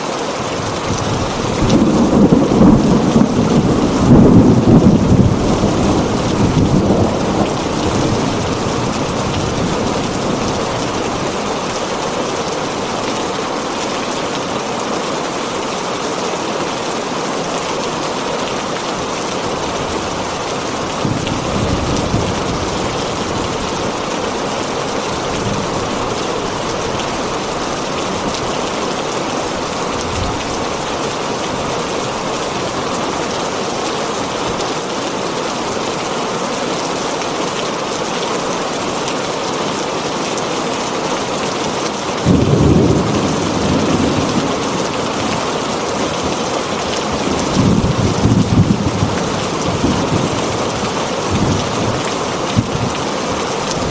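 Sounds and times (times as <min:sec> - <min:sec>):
rain on a tin roof: 0:00.0 - 0:53.9
thunder rumble: 0:01.0 - 0:11.7, 0:42.2 - 0:45.5.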